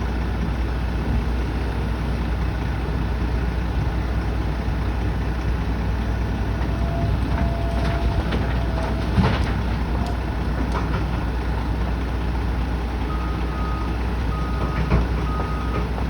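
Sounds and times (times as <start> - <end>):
machinery engine rumbling: 0.0 - 16.0.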